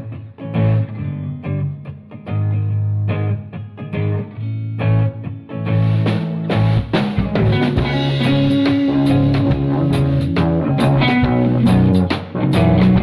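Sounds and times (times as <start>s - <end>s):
bass guitar: 0.0s - 13.0s
plucked guitar: 0.0s - 13.0s
drums: 5.6s - 13.0s.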